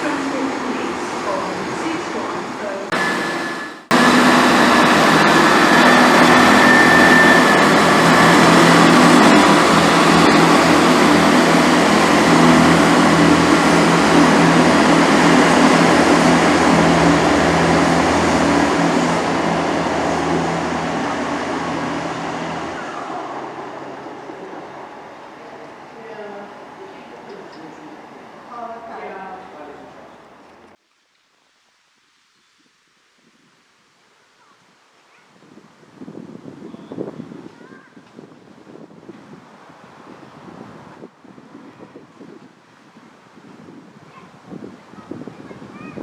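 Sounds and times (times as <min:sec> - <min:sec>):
diesel train engine running: 0:00.0 - 0:30.8
train rumble and wheel noise: 0:00.0 - 0:30.8
high wheel squeal: 0:02.9 - 0:25.9.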